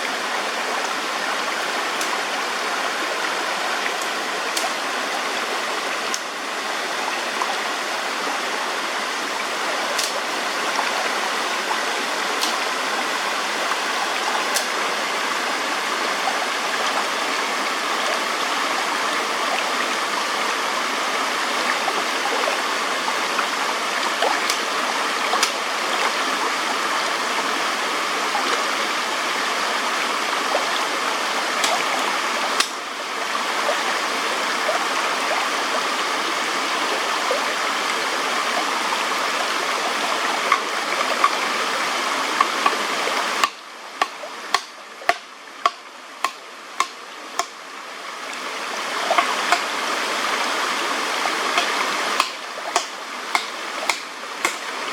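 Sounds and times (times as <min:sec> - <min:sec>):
stream rushing: 0:00.0 - 0:54.9
sharp knocks: 0:43.4 - 0:47.5, 0:51.6 - 0:54.7.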